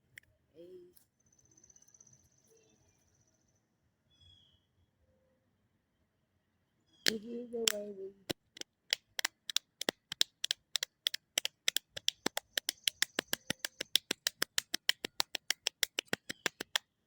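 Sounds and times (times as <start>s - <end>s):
rapid sharp clicks: 7.1s - 16.9s.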